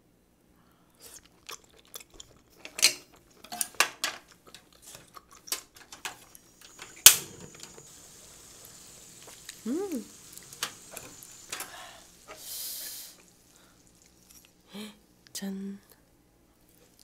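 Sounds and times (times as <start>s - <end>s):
close chewing: 0.9s - 7.8s, 8.7s - 12.5s, 13.2s - 14.7s
wet mouth clicks: 1.0s - 2.6s.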